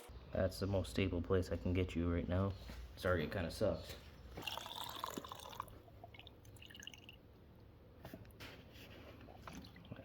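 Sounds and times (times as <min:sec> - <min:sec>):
fuel pouring into tank: 0:04.4 - 0:07.3.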